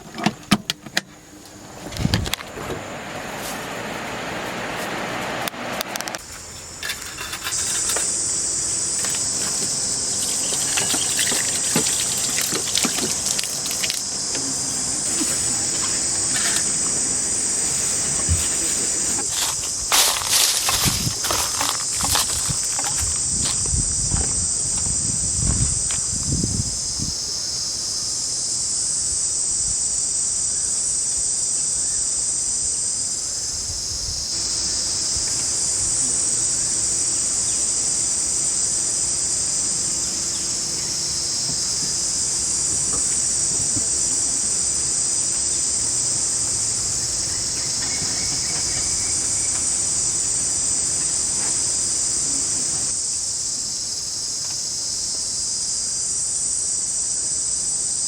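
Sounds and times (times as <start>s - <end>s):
forest insects chorusing: 0.0s - 58.0s.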